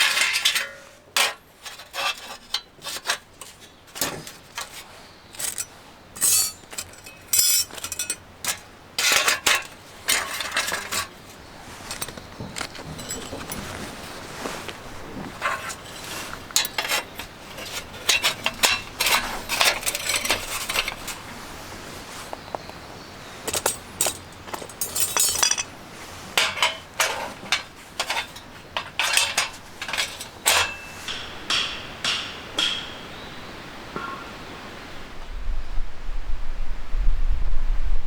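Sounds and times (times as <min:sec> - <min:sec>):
metallic knocks and clinks: 0:05.4 - 0:08.6, 0:11.9 - 0:13.8, 0:23.5 - 0:25.8, 0:26.4 - 0:33.0.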